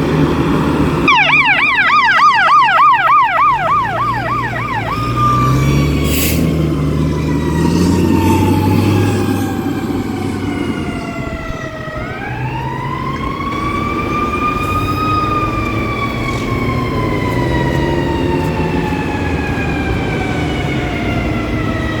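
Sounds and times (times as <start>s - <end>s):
siren wailing: 1.1s - 6.1s.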